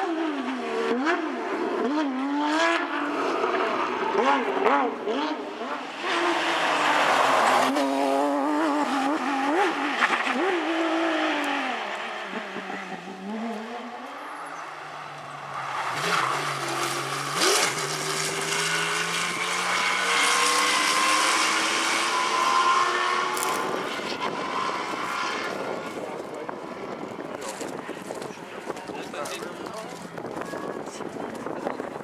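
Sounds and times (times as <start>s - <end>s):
approaching rally car engine: 0.0s - 32.0s
rally car engine revving: 0.0s - 32.0s.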